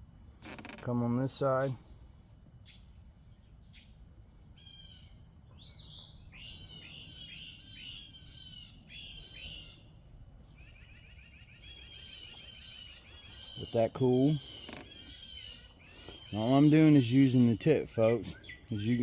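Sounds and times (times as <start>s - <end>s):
birds chirping: 0.0s - 19.0s
bird trill: 1.0s - 19.0s.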